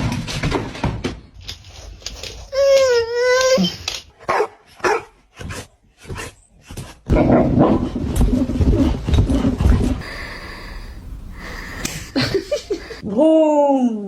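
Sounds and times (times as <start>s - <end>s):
dog barking: 4.3s - 5.2s.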